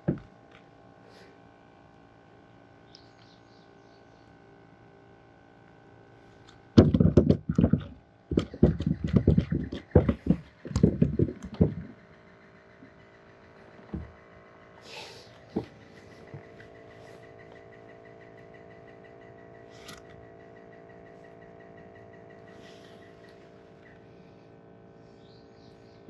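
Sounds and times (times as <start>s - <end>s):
faint steady hum: 0.0s - 26.0s
handling knocks and rubbing: 6.8s - 12.0s, 13.8s - 14.2s.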